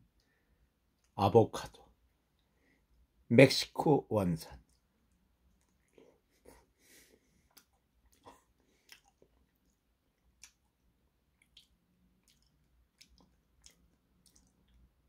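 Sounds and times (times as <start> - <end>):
faint chewing: 4.6 - 15.0
wet mouth clicks and smacks: 7.5 - 14.9.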